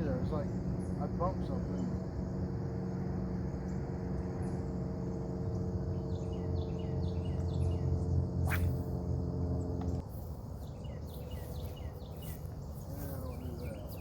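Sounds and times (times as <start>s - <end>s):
low hum: 0.0s - 14.0s
bird chirping: 3.5s - 14.0s
high insect buzz: 5.0s - 14.0s.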